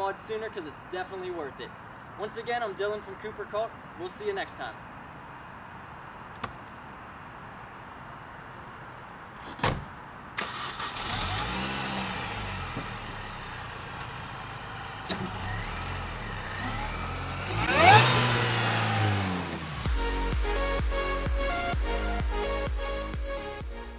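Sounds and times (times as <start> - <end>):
car door thumping shut: 9.4 - 9.9
car engine revving: 10.4 - 20.2
car engine idling: 10.5 - 20.1.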